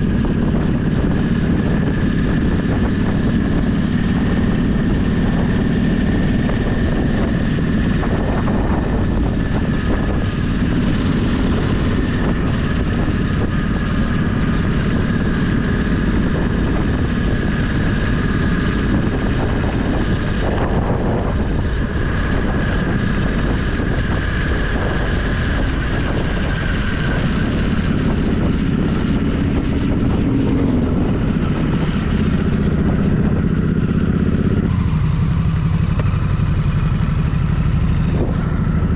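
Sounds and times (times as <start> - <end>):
motorcycle engine rumbling: 0.0 - 38.9.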